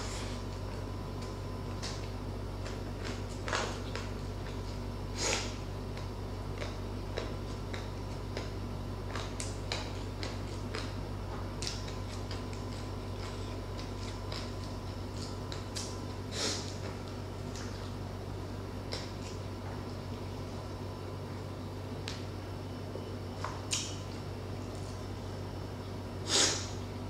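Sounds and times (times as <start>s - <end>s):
person chewing: 1.7s - 8.5s, 9.1s - 11.0s, 11.6s - 18.0s.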